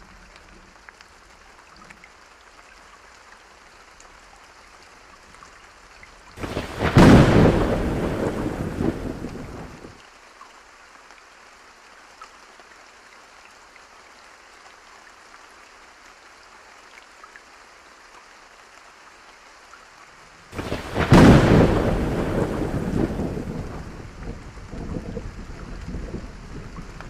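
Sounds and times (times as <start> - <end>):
steady rain: 0.0 - 27.0
loud thunderclap: 6.4 - 9.9, 20.6 - 27.0.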